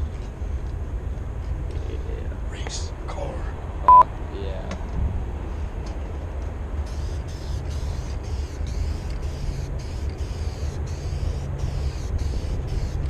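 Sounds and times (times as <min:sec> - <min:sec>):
car engine and road rumble: 0:00.0 - 0:13.0
intermittent hiss: 0:05.5 - 0:13.0.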